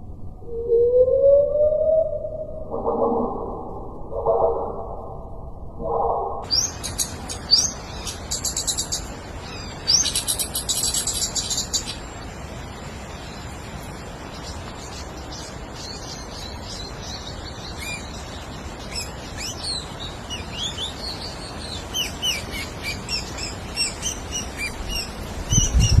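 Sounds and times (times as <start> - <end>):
steady background hiss: 0.0 - 26.0
small birds chirping: 6.4 - 12.3, 13.0 - 26.0.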